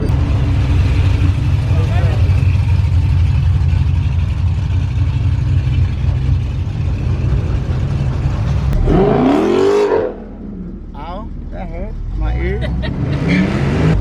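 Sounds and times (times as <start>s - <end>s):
rising pitched sweep: 6.9s - 11.0s.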